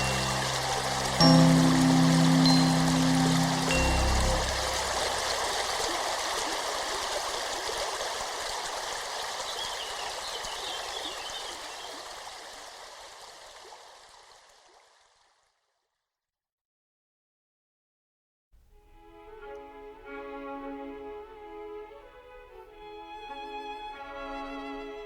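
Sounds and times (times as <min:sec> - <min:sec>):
stream rushing and burbling: 0:00.0 - 0:15.2.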